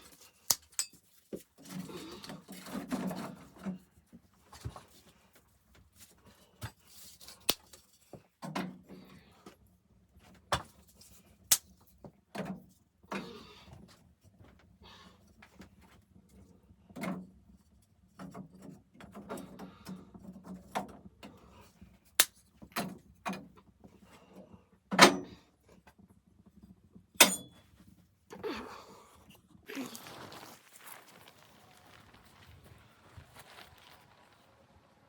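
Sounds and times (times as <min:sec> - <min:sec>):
rustling and scraping: 0:29.7 - 0:35.0.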